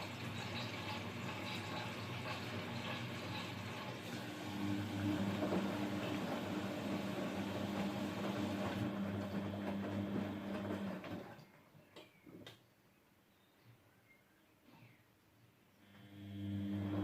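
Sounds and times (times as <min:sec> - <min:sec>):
mains hum: 0:13.3 - 0:17.0.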